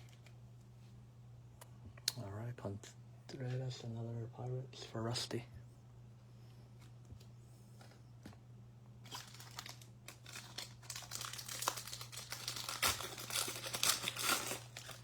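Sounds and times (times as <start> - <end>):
foil wrapper crinkling and tearing: 9.0 - 15.0.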